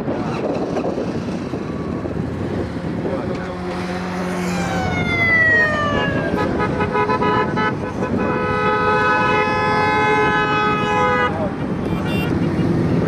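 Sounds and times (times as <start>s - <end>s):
rumble of engines: 0.0s - 13.0s
vehicle horns honking: 6.3s - 12.8s.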